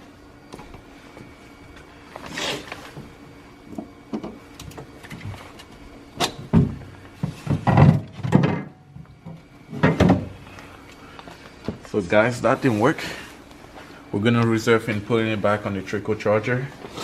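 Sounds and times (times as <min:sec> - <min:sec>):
knocks and clunks: 0:06.2 - 0:10.4.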